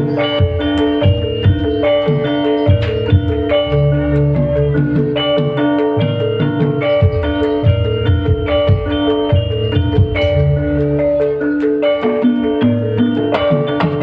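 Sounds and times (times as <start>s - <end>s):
drum beats: 0.0s - 14.0s
ringing struck notes melody: 0.0s - 14.0s
low bass line: 2.6s - 5.3s, 6.0s - 11.5s.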